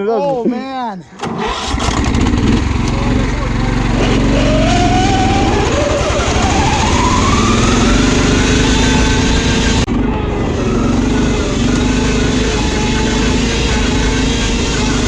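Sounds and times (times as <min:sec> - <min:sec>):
riding lawn mower engine: 0:01.2 - 0:15.0.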